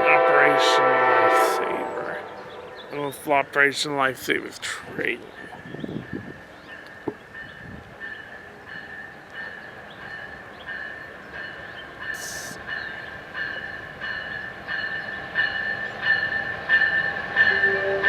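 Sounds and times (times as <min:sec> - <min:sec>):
passenger train approaching: 0:00.0 - 0:18.0
pulsing high ringing: 0:10.2 - 0:18.0.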